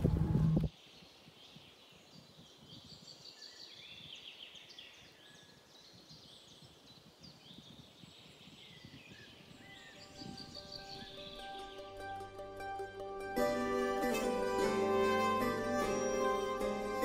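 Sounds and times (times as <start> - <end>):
wind rumble on microphone: 0.0 - 0.7, 5.9 - 11.2
small birds chirping faintly: 0.7 - 12.5.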